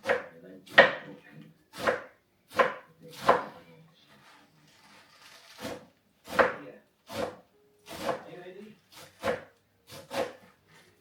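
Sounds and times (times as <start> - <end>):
knife chopping on cutting board: 0.0 - 3.5, 5.6 - 8.3, 8.9 - 10.6.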